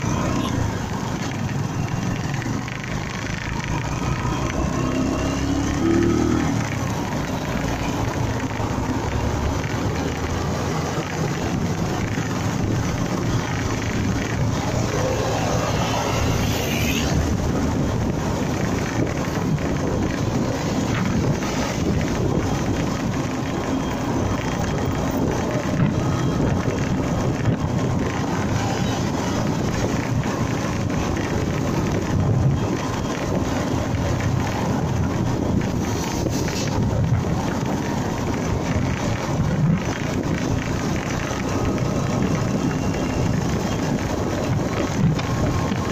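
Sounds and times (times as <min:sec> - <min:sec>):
motorcycle road and engine noise: 0:00.0 - 0:45.9
wind buffeting microphone: 0:00.0 - 0:45.9.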